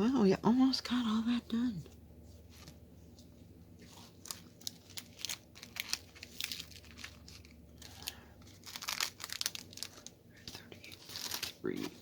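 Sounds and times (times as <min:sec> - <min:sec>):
plastic crinkling: 0:03.8 - 0:12.0.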